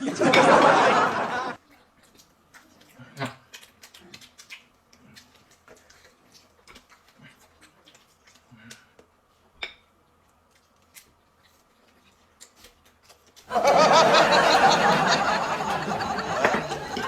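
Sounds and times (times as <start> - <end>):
loud burst of laughter: 0.0 - 1.6, 13.5 - 17.0.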